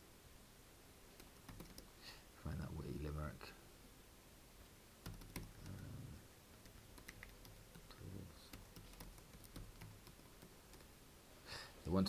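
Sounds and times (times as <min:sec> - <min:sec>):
faint typing on a keyboard: 0:01.1 - 0:02.1, 0:05.0 - 0:11.0.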